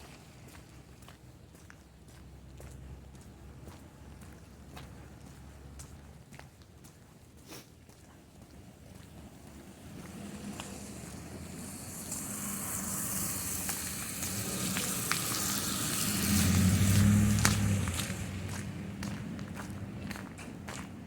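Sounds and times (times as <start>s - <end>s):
vehicle engine humming: 8.2s - 21.0s
tyres hissing on snow: 9.6s - 18.6s.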